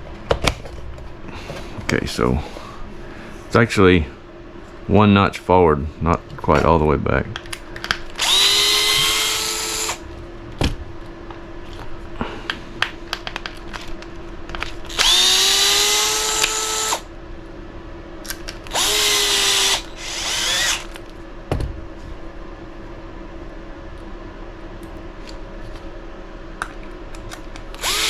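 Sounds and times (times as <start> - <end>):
cordless power driver spinning: 8.1 - 10.0, 14.6 - 17.1, 18.7 - 21.0, 27.7 - 28.0.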